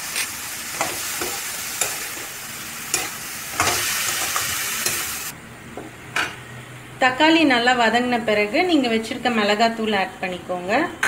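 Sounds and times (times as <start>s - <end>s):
vegetables sizzling in oil: 0.0s - 5.3s.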